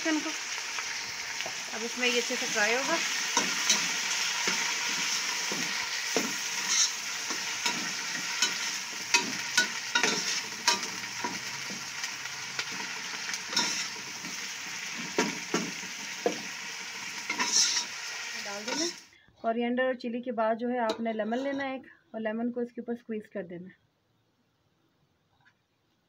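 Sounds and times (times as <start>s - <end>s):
chicken sizzling in hot oil: 0.0s - 19.1s
spoon scraping and knocking pan: 2.4s - 12.0s, 12.6s - 19.0s.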